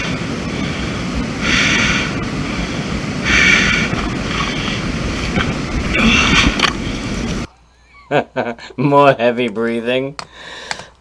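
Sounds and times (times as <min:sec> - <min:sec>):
wind on microphone: 0:00.0 - 0:07.5
person panting heavily: 0:00.4 - 0:06.9, 0:10.3 - 0:10.9.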